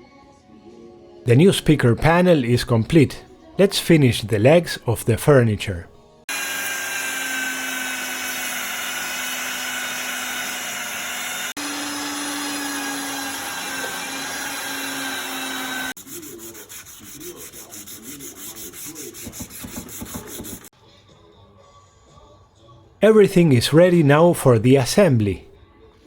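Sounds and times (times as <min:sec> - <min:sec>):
electric sander on wood: 0:06.3 - 0:16.2
hand sanding rubbing strokes: 0:12.5 - 0:20.7.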